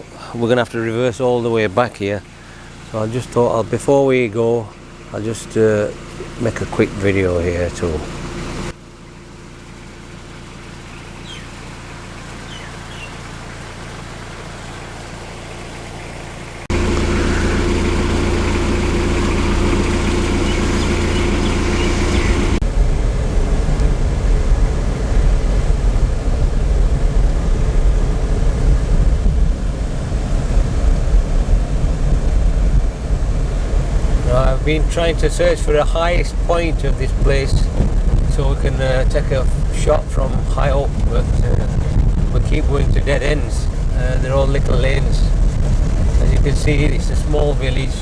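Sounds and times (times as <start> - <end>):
car engine idling: 0.0 - 22.6
uneven low engine rumble: 0.0 - 48.0.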